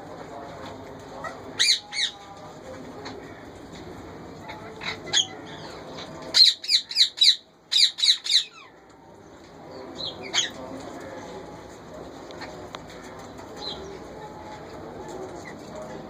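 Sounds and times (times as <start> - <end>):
parakeets squawking: 1.6 - 2.2, 4.5 - 8.7, 10.0 - 10.6.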